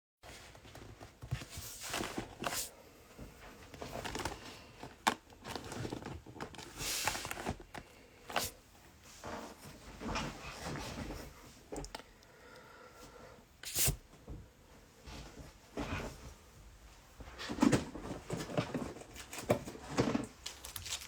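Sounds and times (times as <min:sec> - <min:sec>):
packaging rustling: 0:03.6 - 0:08.6, 0:18.3 - 0:21.0.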